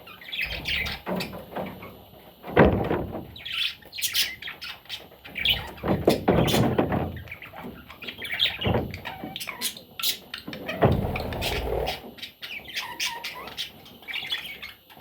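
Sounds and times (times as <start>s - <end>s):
budgerigar chattering and squawking: 0.1s - 1.1s, 7.3s - 14.8s.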